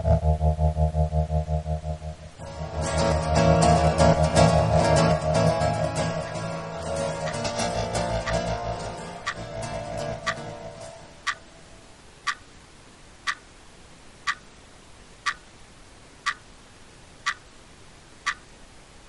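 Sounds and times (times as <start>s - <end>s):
music: 0.0s - 11.4s
clock ticking: 0.0s - 11.6s, 12.2s - 12.5s, 13.2s - 13.5s, 14.2s - 14.5s, 15.2s - 15.5s, 16.2s - 16.5s, 17.2s - 17.4s, 18.2s - 18.5s.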